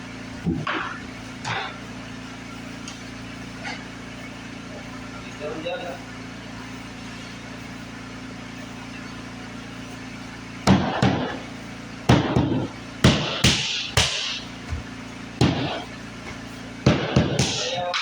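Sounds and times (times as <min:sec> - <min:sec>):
hammer knocks on flooring: 0:12.1 - 0:17.6.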